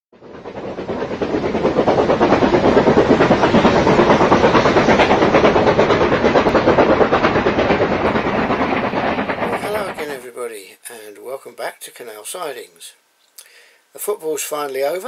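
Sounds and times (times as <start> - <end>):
train clattering with hiss: 0.2 - 10.3.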